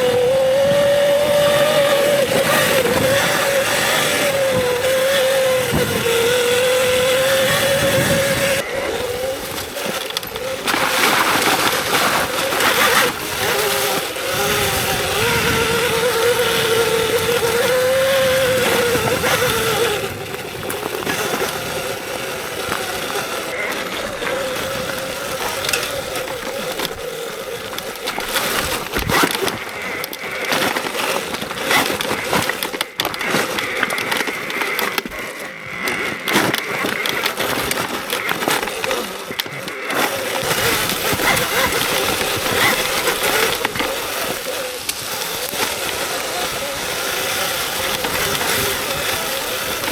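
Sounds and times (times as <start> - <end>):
bike knocks and rattles: 0.0 - 49.9
electric motor whine: 0.0 - 49.9
wind and tyre noise: 0.0 - 49.9.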